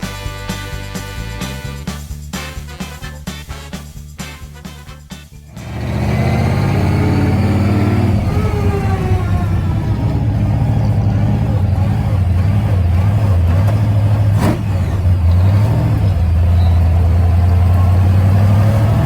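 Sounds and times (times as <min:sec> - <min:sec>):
vehicle engine drone: 0:05.4 - 0:19.0.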